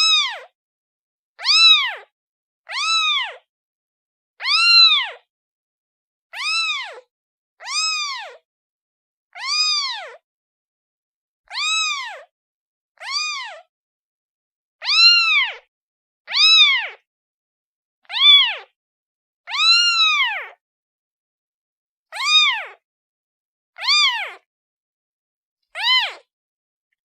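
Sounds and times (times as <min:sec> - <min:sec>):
kitten meowing: 0:00.0 - 0:00.5, 0:01.4 - 0:02.1, 0:02.7 - 0:03.5, 0:04.4 - 0:05.3, 0:06.4 - 0:08.4, 0:09.4 - 0:10.2, 0:11.5 - 0:12.3, 0:13.0 - 0:13.7, 0:14.8 - 0:15.7, 0:16.3 - 0:17.0, 0:18.0 - 0:18.7, 0:19.5 - 0:20.6, 0:22.1 - 0:22.8, 0:23.8 - 0:24.4, 0:25.8 - 0:26.3.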